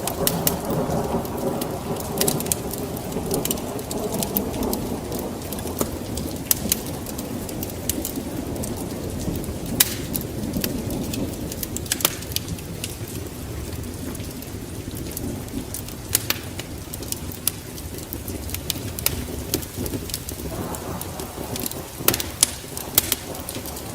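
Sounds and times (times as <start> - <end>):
steady rain: 0.0 - 23.9
wood fire crackling and popping: 0.0 - 23.9.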